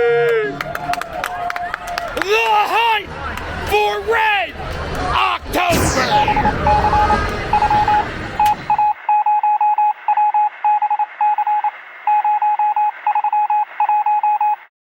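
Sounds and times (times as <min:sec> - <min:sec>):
crowd noise: 0:00.4 - 0:09.0
radio hiss: 0:05.7 - 0:08.2.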